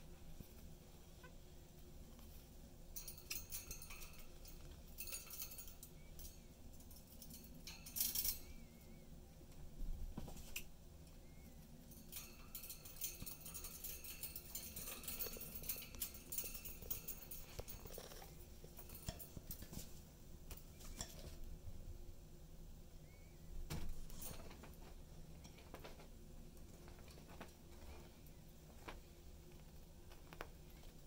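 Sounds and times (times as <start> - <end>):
faint warbled whistles: 23.0 - 23.4.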